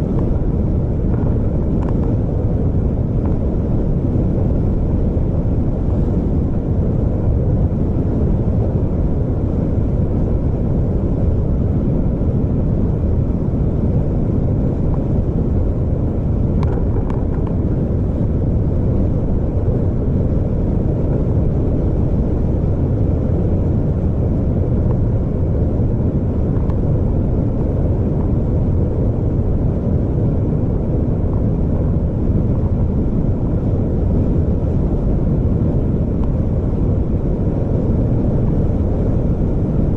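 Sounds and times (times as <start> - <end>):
vehicle rumble and road noise: 0.0 - 39.9.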